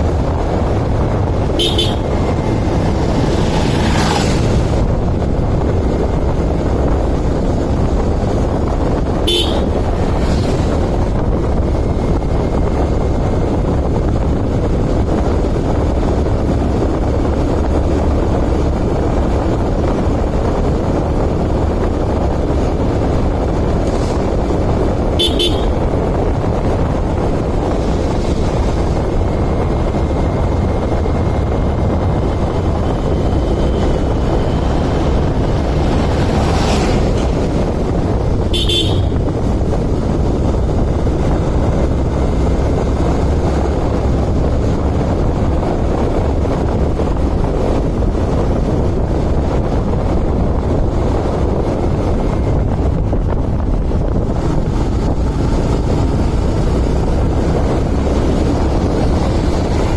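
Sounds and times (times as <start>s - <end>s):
road traffic rumble: 0.0s - 59.9s
vehicle horn tooting: 1.5s - 2.3s, 9.2s - 9.9s, 25.1s - 26.0s, 38.4s - 39.3s.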